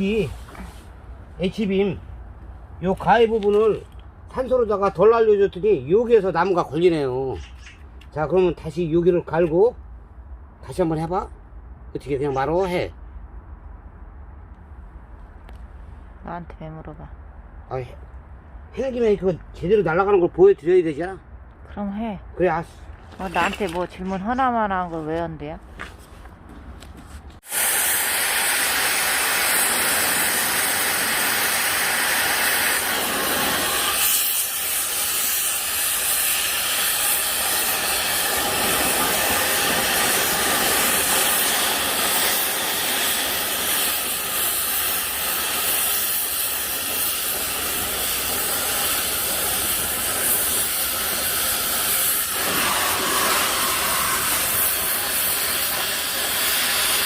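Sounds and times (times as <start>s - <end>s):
cutting torch hissing: 0.0s - 2.0s, 27.4s - 57.0s.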